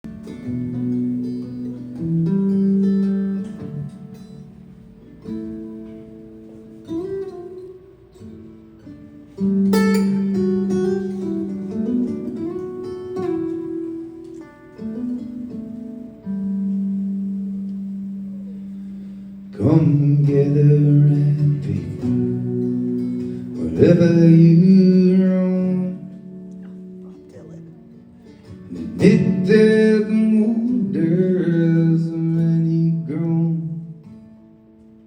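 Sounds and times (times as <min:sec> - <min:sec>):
acoustic guitar strumming: 0:00.0 - 0:35.0.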